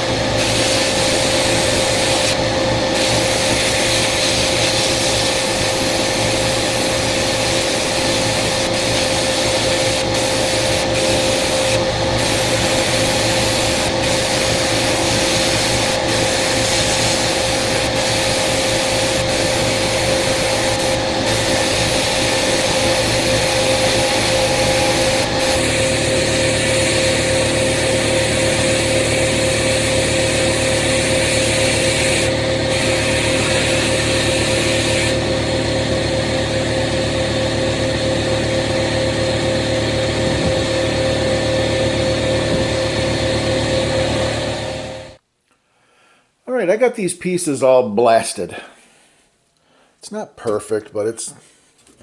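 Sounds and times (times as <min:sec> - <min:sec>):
sandblaster hissing: 0:00.0 - 0:35.7
machine hum: 0:00.0 - 0:45.2.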